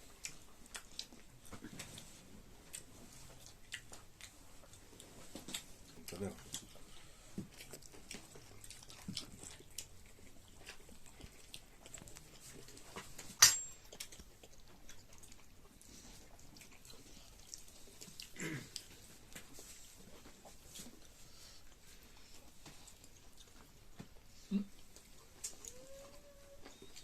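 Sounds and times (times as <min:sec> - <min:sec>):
chewing chicken: 0:00.0 - 0:27.0
grunt-like mouth sound: 0:18.4 - 0:18.8.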